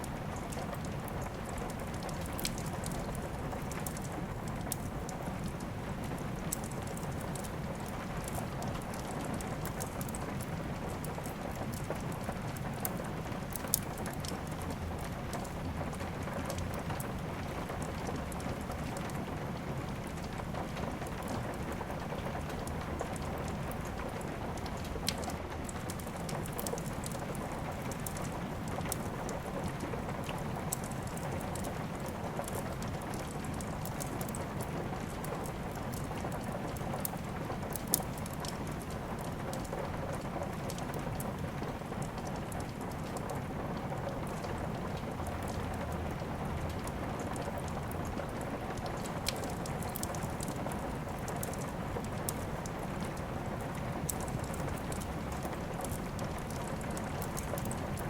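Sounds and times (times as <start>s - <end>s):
steady rain: 0.0s - 58.0s
wood fire crackling and popping: 0.0s - 58.0s.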